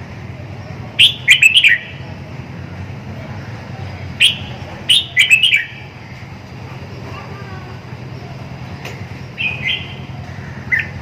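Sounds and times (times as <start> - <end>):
bird whistled song: 1.0 - 2.0, 4.2 - 5.9, 9.3 - 10.1, 10.7 - 11.0.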